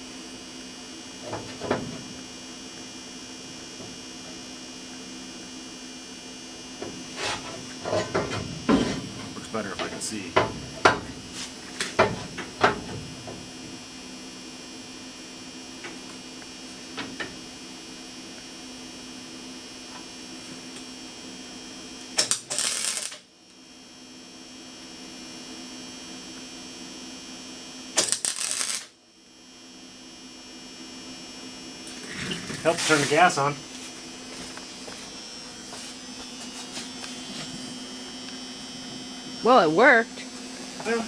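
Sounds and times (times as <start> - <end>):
welder hum: 0.0 - 21.3, 21.9 - 23.6, 27.8 - 41.0
welding arc crackling: 22.2 - 23.2, 28.0 - 29.0, 31.8 - 38.5.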